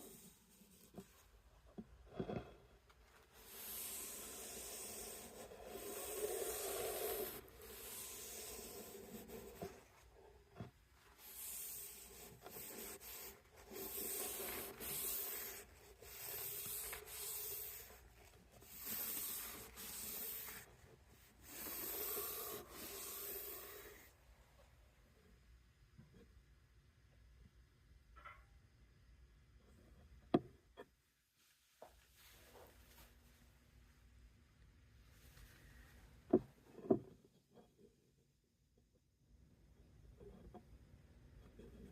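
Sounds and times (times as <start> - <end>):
hand rubbing wooden handle: 0.0 - 24.1.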